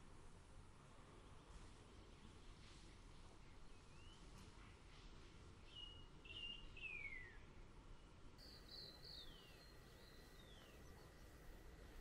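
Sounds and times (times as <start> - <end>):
background hiss: 0.0 - 12.0
faint whistled bird calls: 3.4 - 4.8, 5.6 - 7.5, 8.4 - 12.0.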